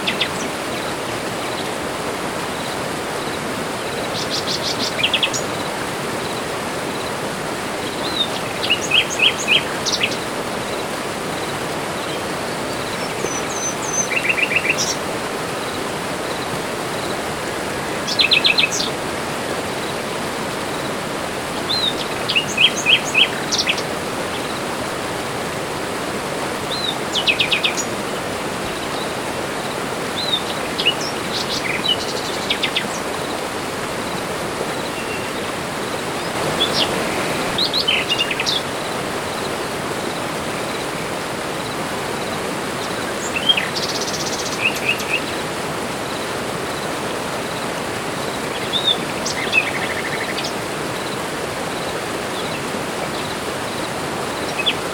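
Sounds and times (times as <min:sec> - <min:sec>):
rushing background hiss: 0:00.0 - 0:54.9
birds chirping and trilling: 0:07.8 - 0:10.3, 0:30.2 - 0:33.4, 0:34.1 - 0:45.4, 0:48.3 - 0:51.2, 0:54.4 - 0:54.9.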